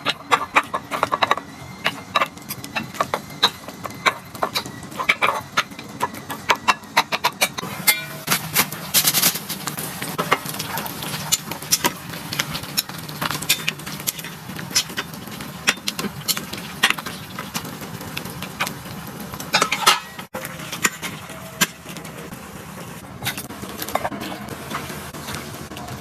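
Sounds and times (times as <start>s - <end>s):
metal utensils clinking on dishes: 0.0s - 9.5s, 10.1s - 17.7s, 19.4s - 22.2s.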